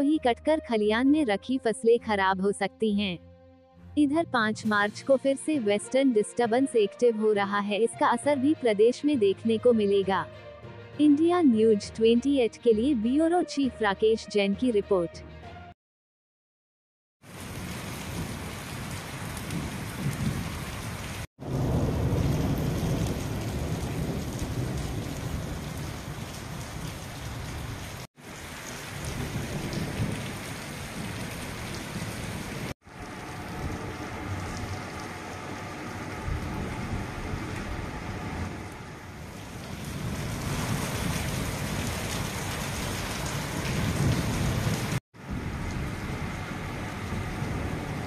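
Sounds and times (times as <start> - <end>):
rain falling: 17.2 - 48.0
low thunder rumble: 21.4 - 27.7, 28.9 - 48.0.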